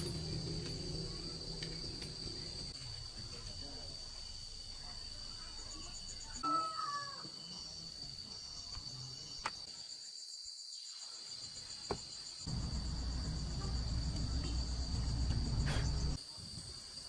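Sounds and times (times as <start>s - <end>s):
low rumble: 0.0s - 2.8s, 12.5s - 16.2s
insects chirring: 0.0s - 17.0s.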